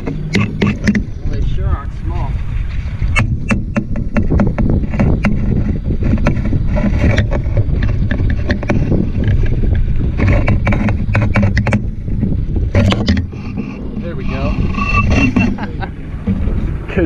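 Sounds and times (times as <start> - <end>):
sharp knocks and clicks: 0.0 - 1.2, 3.1 - 16.8
water rumble under boat: 0.0 - 17.0
wind on microphone: 0.0 - 17.0.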